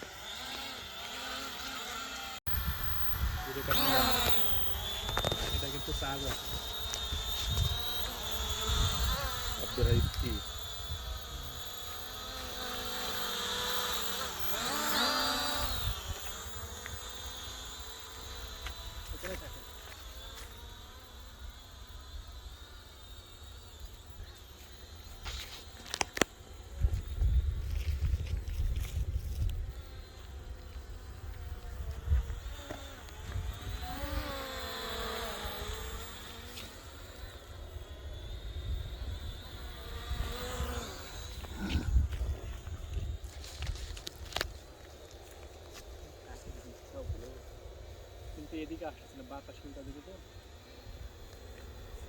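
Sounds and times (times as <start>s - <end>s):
drone propellers buzzing: 0.0s - 52.0s
wind rumble on microphone: 4.8s - 11.6s, 26.6s - 34.3s, 38.0s - 44.6s.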